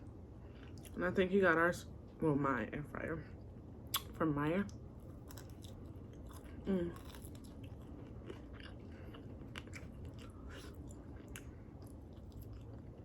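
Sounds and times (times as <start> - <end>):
soft chewing: 0.4 - 1.1, 4.7 - 13.0.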